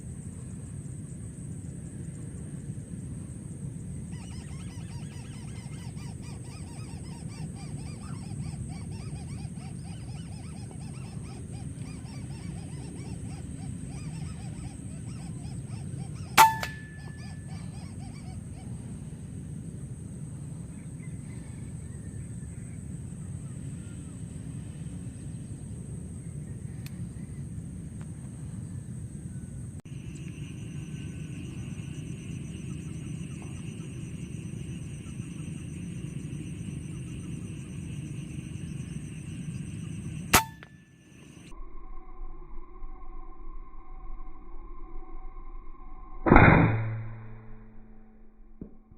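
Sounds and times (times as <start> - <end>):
steady low rumble: 0.0 - 46.2
repeated animal calls: 4.0 - 19.2, 29.9 - 40.6
air rifle shot: 40.3 - 40.7.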